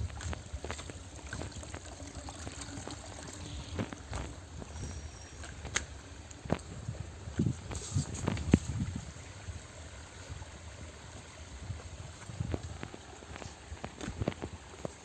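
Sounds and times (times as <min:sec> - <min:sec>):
water trickling in a stream: 0:00.0 - 0:15.0
sharp crackles and knocks: 0:03.6 - 0:06.8, 0:12.2 - 0:15.0.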